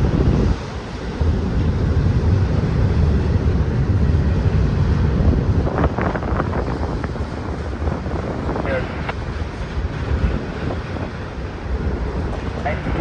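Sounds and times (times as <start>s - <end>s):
freight train rumble: 0.0s - 13.0s
wind buffeting microphone: 0.0s - 13.0s.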